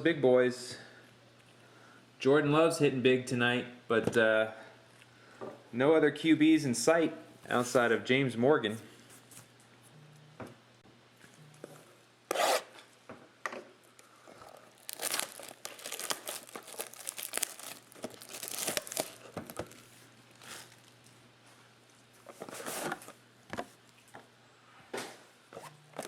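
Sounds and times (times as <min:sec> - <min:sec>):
card pack wrappers tearing: 0:14.4 - 0:21.1
plastic wrapper crumpling: 0:14.4 - 0:21.2.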